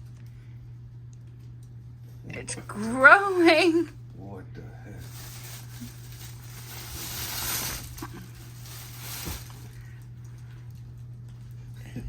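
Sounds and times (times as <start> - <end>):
foam pillow rustling: 5.0 - 9.9.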